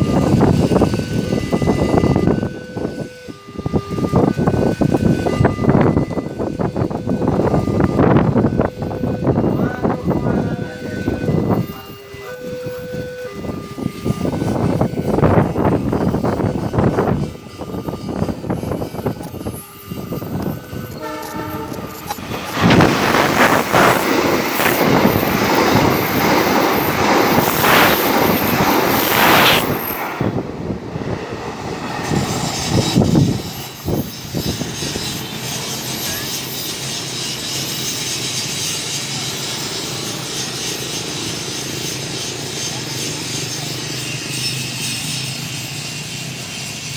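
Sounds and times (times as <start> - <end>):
train horn: 0.0 - 30.5
train rushing past: 0.0 - 46.9
train wheels clattering: 13.9 - 30.3, 32.0 - 46.9.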